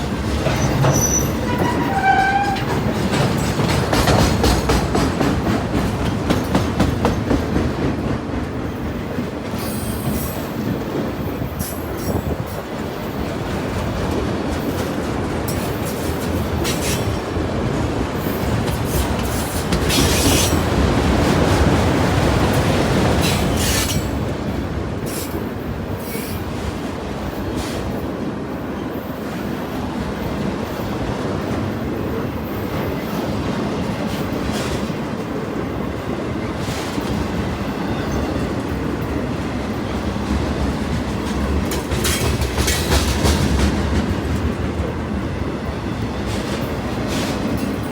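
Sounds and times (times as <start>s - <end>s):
train rumble: 0.0s - 47.9s
train wheels clacking on rails: 0.0s - 47.9s
high-pitched wheel squeal: 0.9s - 2.7s.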